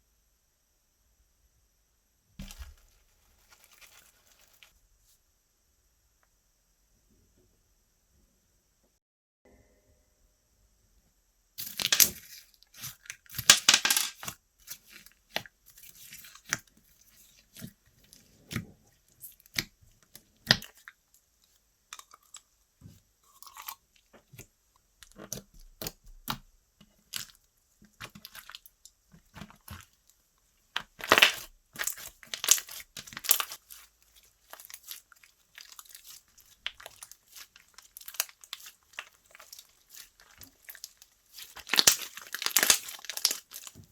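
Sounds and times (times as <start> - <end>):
slime squished by hand: 30.8 - 43.9.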